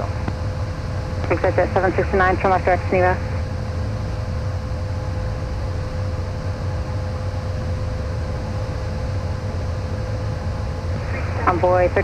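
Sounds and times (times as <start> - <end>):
jet cockpit airflow and engine rumble: 0.0 - 12.0
thin steady whine: 0.0 - 12.0.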